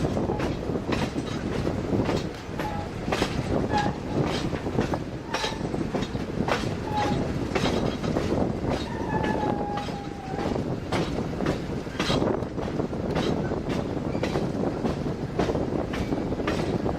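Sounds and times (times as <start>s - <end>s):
train rumbling on track: 0.0s - 16.9s
wheels clacking over rail joints: 0.0s - 16.9s
high wheel squeals: 8.8s - 10.5s.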